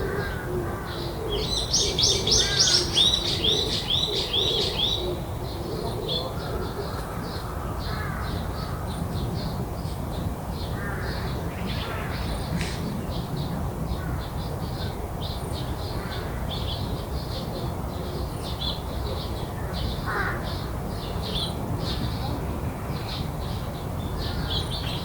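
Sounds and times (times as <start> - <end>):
bird calls: 0.0 - 8.9
constant low rumble: 0.0 - 25.0.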